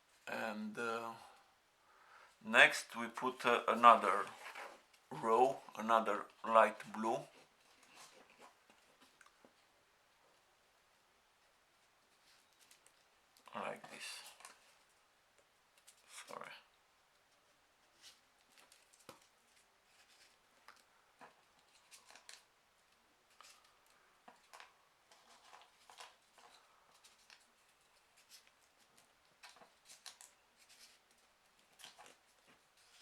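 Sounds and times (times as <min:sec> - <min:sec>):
paper rustling and ticking: 0:17.2 - 0:33.0.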